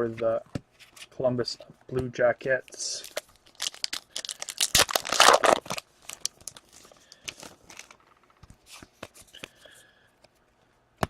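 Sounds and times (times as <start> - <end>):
wrapper tearing and crinkling: 3.0 - 8.0.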